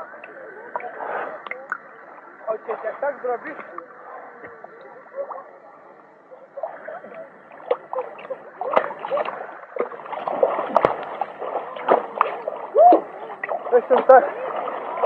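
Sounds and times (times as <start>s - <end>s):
distant voices: 0.0s - 15.0s
water splashing and gurgling: 6.4s - 15.0s.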